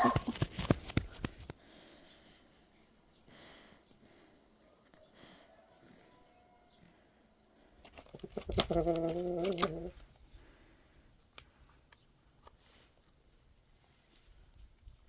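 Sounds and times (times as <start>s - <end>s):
animal call: 0.0s - 0.4s.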